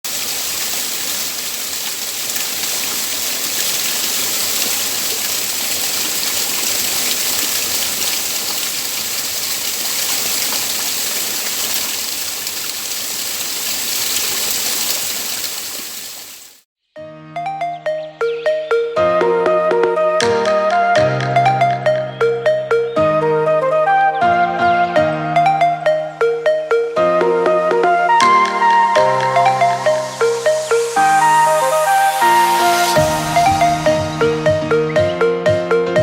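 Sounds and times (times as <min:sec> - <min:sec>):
waterfall rushing: 0:00.1 - 0:16.6, 0:23.8 - 0:35.8.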